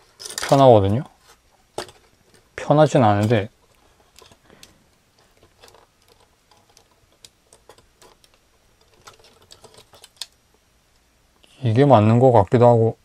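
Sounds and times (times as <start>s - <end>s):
plastic parts clicking: 0.1s - 0.8s, 1.7s - 2.5s, 3.1s - 10.4s.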